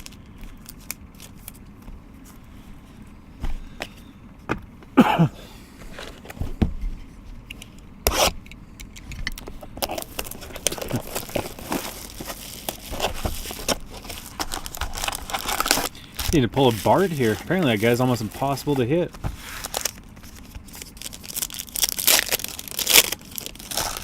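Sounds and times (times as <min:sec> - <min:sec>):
card packs crinkling: 0:00.0 - 0:02.4, 0:09.8 - 0:24.0.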